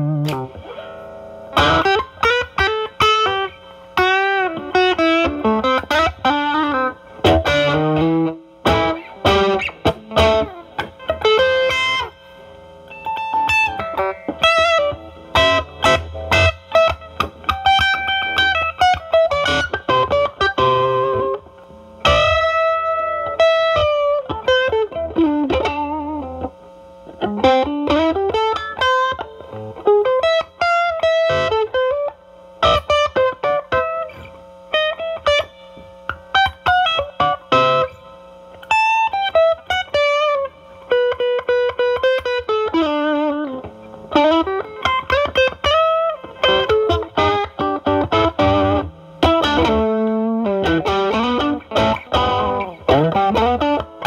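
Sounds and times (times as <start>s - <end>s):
overdriven electric guitar blues lead: 0.0s - 54.0s.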